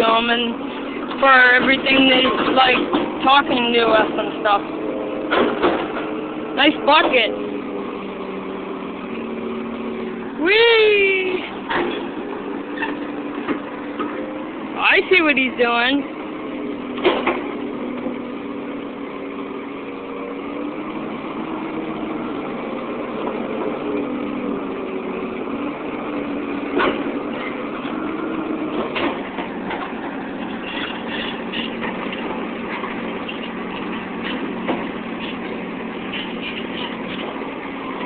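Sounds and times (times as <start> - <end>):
excavator diesel engine running: 0.0 - 38.0
squeaking tracks: 10.7 - 14.2, 25.9 - 38.0.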